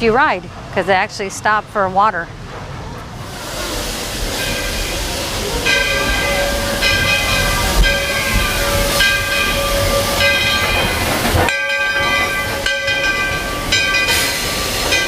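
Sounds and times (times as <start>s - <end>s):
steam train rumble: 0.0s - 15.0s
high ringing tones: 5.7s - 15.0s.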